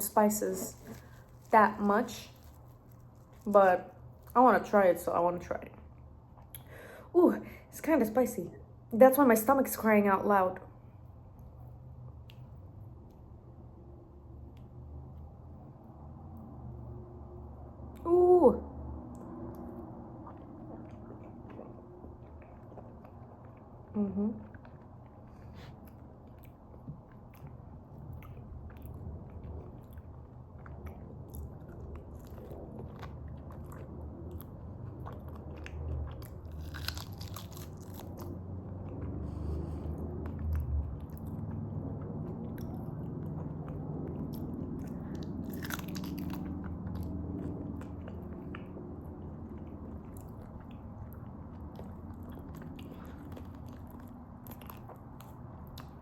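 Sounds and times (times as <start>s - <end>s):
person chewing food: 0.6s - 1.6s, 19.1s - 56.0s.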